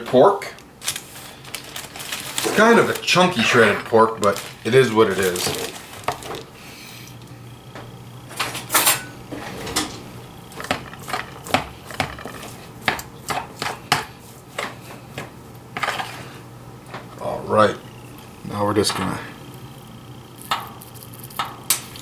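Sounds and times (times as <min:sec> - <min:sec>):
steady low hum: 0:00.0 - 0:22.0
utensil tapping against dish: 0:10.5 - 0:15.9.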